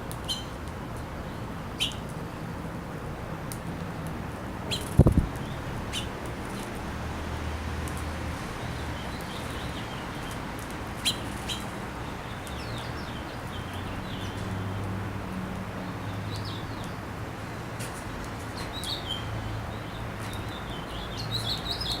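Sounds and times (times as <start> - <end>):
small birds chirping: 0.1 - 2.4, 3.5 - 6.7, 7.9 - 15.0, 15.8 - 17.2, 17.8 - 22.0.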